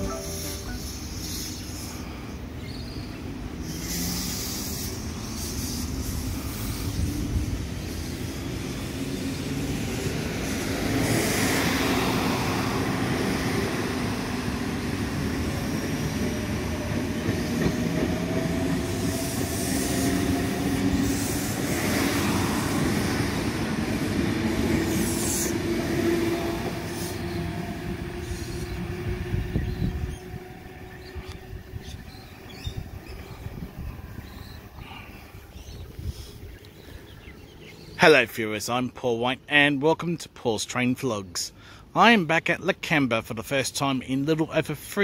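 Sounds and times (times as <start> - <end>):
high hissing bursts: 0.0 - 2.0, 18.8 - 23.0
train wheels rumbling on rail: 3.2 - 34.6.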